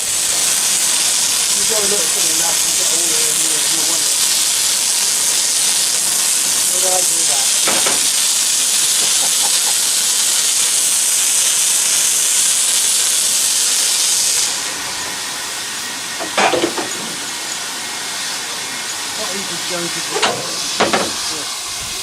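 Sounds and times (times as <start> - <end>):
locomotive steam hiss: 0.0 - 22.0.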